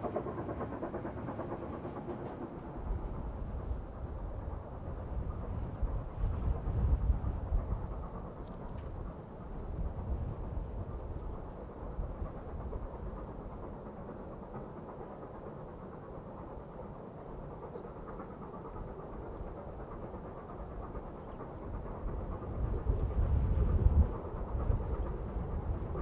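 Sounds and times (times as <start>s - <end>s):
distant steam train rumble: 0.0s - 26.0s.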